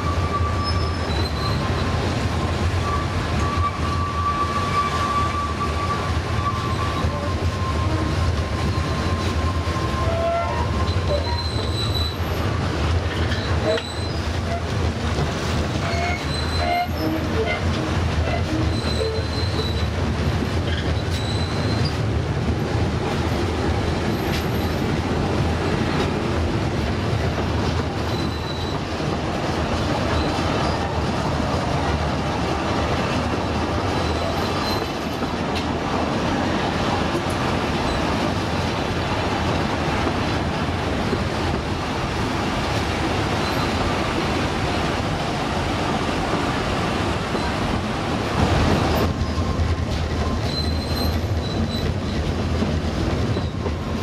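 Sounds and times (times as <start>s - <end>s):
high-pitched wheel squeals: 0.0s - 1.8s, 2.8s - 12.4s, 15.8s - 19.9s, 20.7s - 22.0s, 28.0s - 28.8s, 49.2s - 52.0s
train carriage running: 0.0s - 54.0s.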